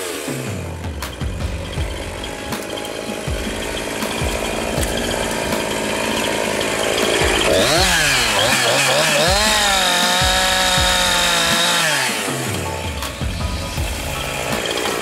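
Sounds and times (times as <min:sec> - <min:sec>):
chainsaw idling and revving: 0:00.0 - 0:15.0.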